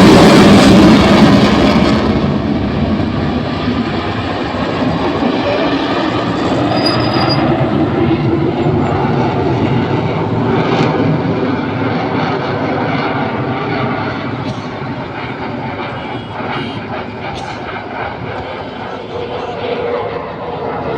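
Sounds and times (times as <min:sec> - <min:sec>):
military aircraft engine roar: 0:00.0 - 0:20.9.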